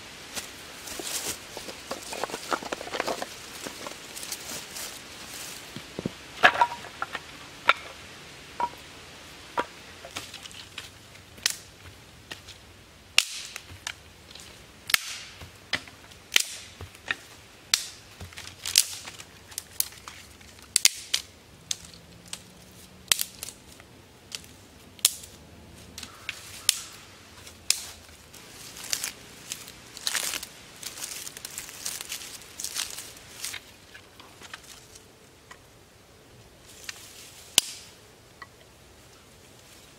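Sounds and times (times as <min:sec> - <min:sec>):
dry sticks snapping: 0:09.6 - 0:25.4, 0:26.0 - 0:35.6, 0:36.8 - 0:38.6.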